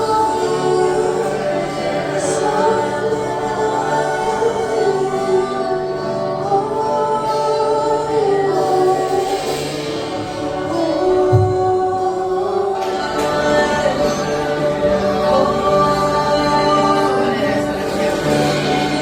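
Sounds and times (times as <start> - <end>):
group singing gospel song: 0.0 - 19.0
instrumental backing: 0.0 - 19.0.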